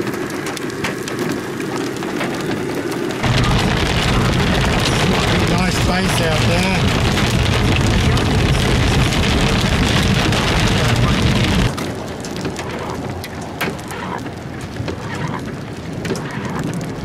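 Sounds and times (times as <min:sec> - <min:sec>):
rain drops hitting close by: 0:00.0 - 0:17.0
rain on a car: 0:00.0 - 0:17.0
road rumble: 0:00.0 - 0:17.0.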